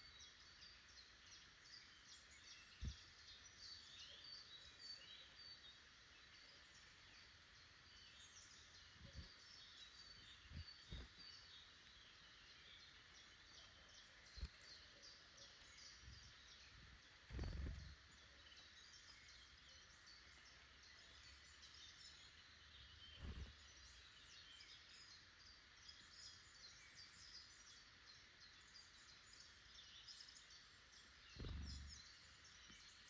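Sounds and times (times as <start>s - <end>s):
small birds chirping: 0.0s - 33.0s
soft low thumps: 17.3s - 17.9s.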